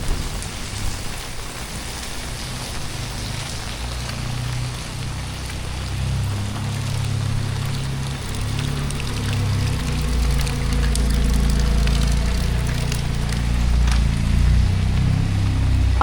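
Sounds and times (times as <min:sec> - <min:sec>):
heavy rain pouring: 0:00.0 - 0:16.0
sharp ticks of raindrops: 0:00.0 - 0:16.0
loud low rumble: 0:07.2 - 0:16.0.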